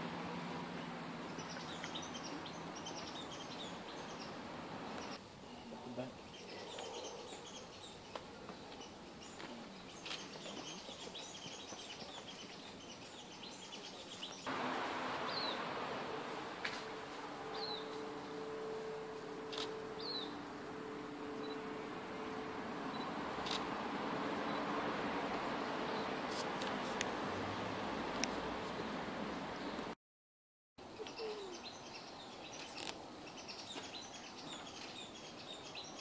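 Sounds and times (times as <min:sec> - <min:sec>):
background hiss: 0:00.0 - 0:30.0
small birds chirping: 0:00.8 - 0:18.5, 0:19.4 - 0:21.9, 0:30.9 - 0:36.0
low steady drone: 0:14.5 - 0:26.3.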